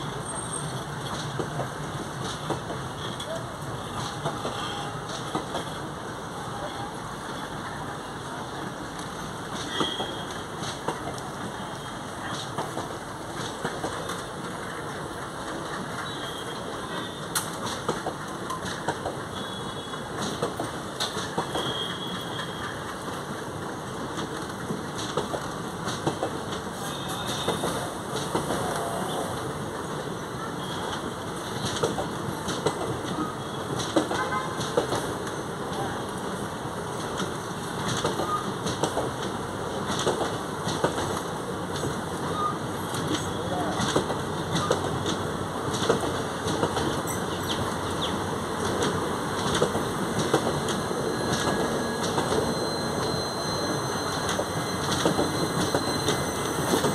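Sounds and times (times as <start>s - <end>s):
train wheels rumbling on rail: 0.0s - 56.9s
wheels clicking over rail joints: 36.9s - 56.9s.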